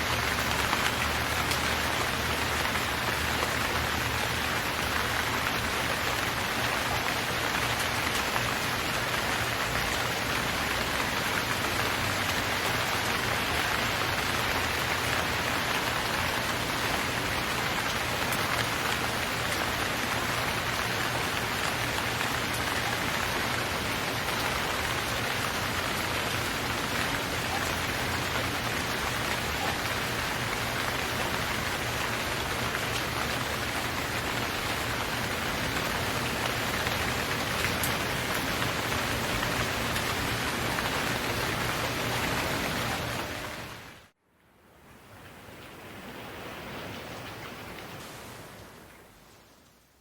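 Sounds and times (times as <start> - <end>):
steady rain hiss: 0.0 - 50.0.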